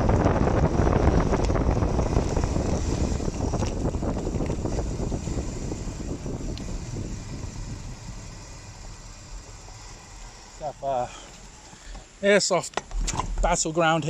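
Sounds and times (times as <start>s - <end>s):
wind rushing over microphone: 0.0s - 11.2s
bicycle tyres on wet road: 0.0s - 14.0s.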